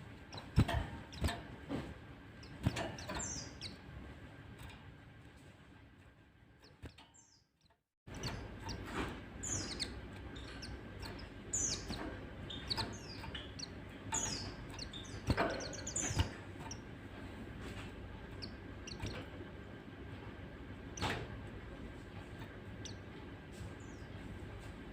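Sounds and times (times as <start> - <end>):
birds chirping and twittering: 0.0 - 4.9, 6.0 - 24.9.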